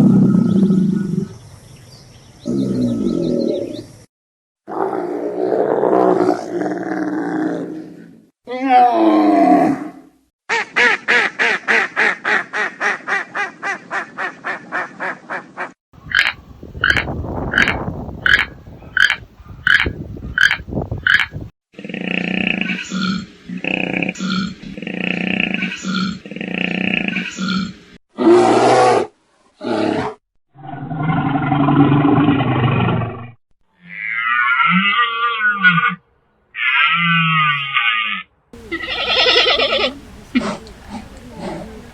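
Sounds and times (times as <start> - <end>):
big cat roaring: 0.0 - 1.4, 2.4 - 3.8, 4.7 - 8.2, 21.8 - 33.3
duck quacking: 10.5 - 21.4, 38.6 - 41.9
high wavering animal call: 16.0 - 21.3, 36.6 - 41.9.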